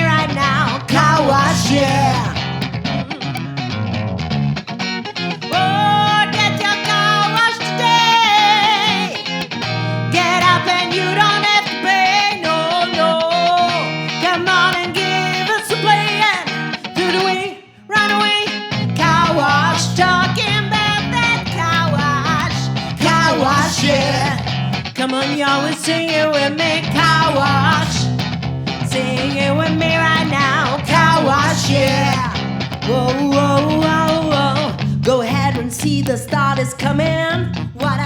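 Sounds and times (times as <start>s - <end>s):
bass line: 0.0s - 4.6s, 18.8s - 24.9s, 26.6s - 38.0s
guitar lead lines: 0.0s - 38.0s.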